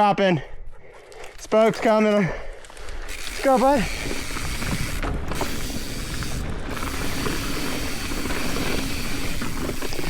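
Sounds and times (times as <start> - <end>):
tyres rattling over dirt and rock: 1.4 - 10.0
bicycle freewheel ratcheting: 3.0 - 10.0.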